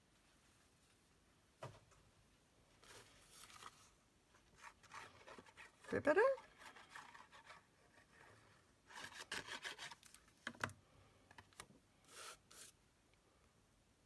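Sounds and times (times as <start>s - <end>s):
card stock rubbing and scraping: 4.4s - 10.2s, 12.1s - 12.8s.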